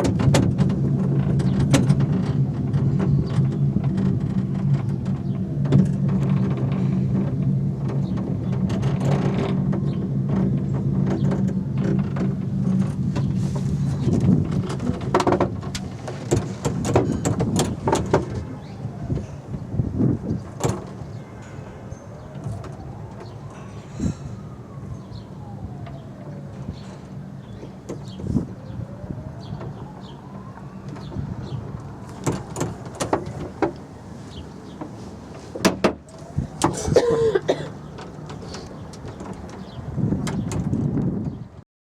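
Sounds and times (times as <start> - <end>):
sharp knocks and clicks: 0.0 - 13.4, 14.1 - 18.6, 20.4 - 21.2, 29.6 - 33.9, 35.6 - 36.8, 37.8 - 41.1
cable car cabin rattling: 0.0 - 41.6
clicks and knocks: 14.1 - 18.5.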